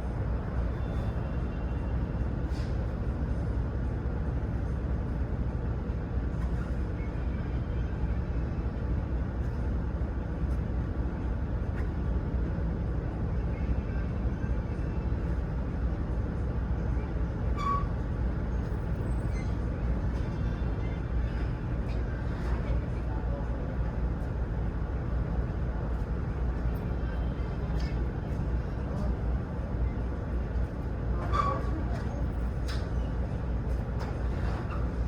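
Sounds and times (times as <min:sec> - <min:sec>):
vehicle engine rumbling: 0:14.4 - 0:35.0.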